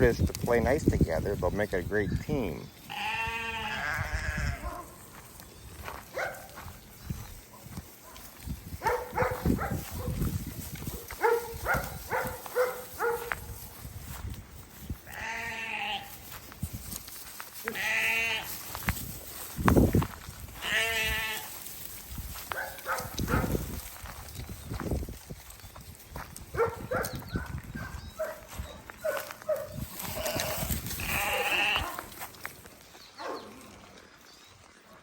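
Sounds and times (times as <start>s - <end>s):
sheep bleating: 2.8s - 4.8s, 15.1s - 16.3s, 17.6s - 18.7s, 20.6s - 21.5s, 30.0s - 32.2s.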